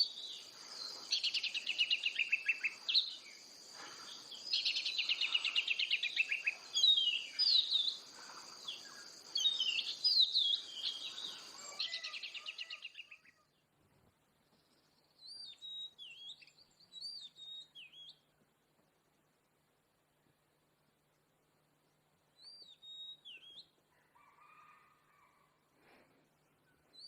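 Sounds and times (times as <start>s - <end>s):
bird singing trills and whistles: 0.0s - 3.3s, 4.3s - 8.0s, 8.6s - 13.4s, 15.2s - 18.2s, 22.4s - 23.7s.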